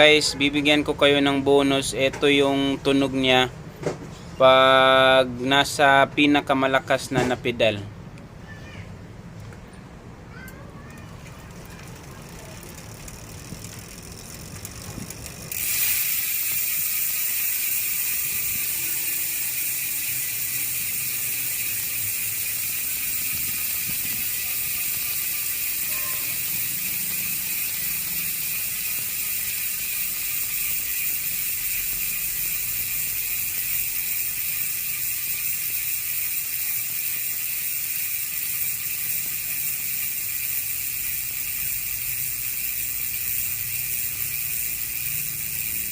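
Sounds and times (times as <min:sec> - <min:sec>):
bicycle freehub ratcheting buzz: 0:00.0 - 0:01.8, 0:11.0 - 0:45.9.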